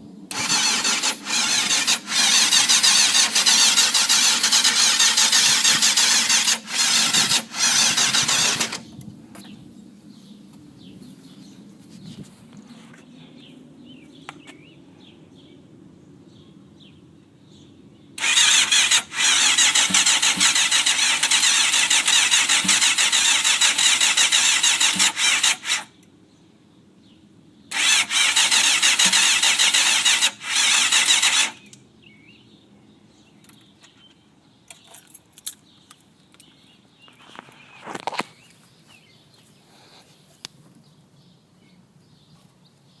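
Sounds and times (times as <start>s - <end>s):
motorcycle engine cranking: 0.3s - 8.9s, 18.2s - 25.9s, 27.7s - 31.8s.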